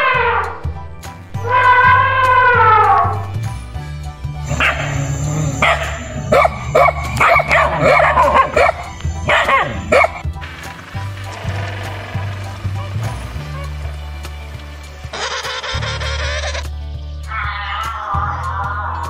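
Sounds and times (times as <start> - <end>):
background music: 0.0 - 19.0
dog barking and yipping: 4.4 - 10.3.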